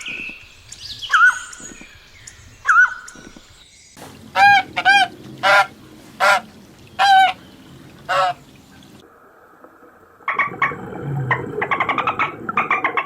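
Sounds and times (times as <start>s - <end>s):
goose honking: 4.1s - 9.0s
animal rapid chattering calls: 4.3s - 8.5s.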